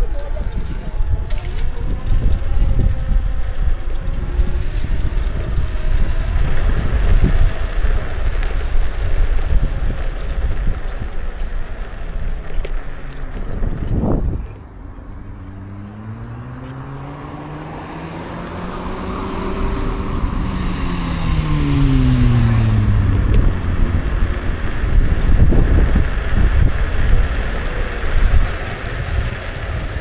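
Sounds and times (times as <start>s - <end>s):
wind noise on microphone: 0.0s - 30.0s
car passing by: 13.4s - 30.0s.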